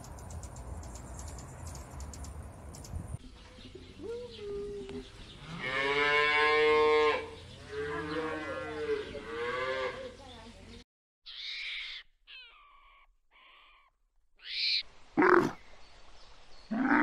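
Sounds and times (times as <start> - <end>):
cattle mooing: 5.5 - 10.1.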